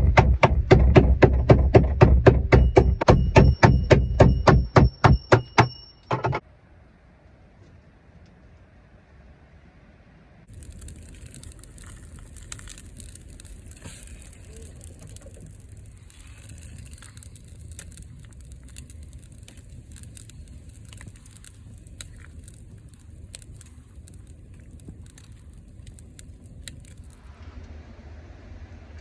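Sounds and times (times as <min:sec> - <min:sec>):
wind buffeting microphone: 0:10.5 - 0:27.2
small crackles and clicks: 0:10.5 - 0:27.3.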